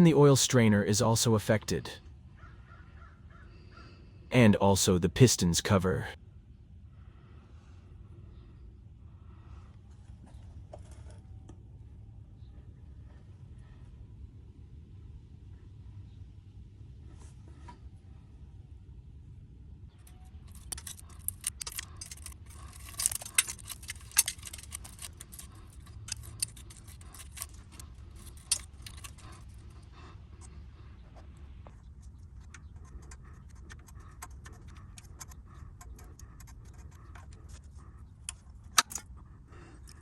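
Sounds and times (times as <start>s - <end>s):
steady low hum: 18.0s - 40.0s
metal tools clinking: 20.5s - 29.6s.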